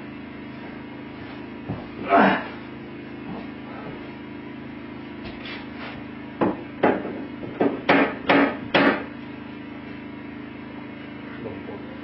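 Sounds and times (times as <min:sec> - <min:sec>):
steady low hum: 0:00.0 - 0:12.0
knocking on sheet metal pipe: 0:06.4 - 0:09.1.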